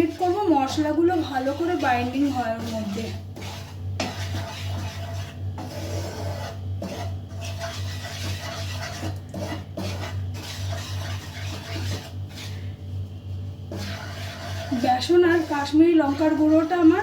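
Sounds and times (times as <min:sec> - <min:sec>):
utensil scraping frying pan: 0:00.0 - 0:12.8, 0:13.6 - 0:17.0
food frying in oil: 0:13.8 - 0:17.0.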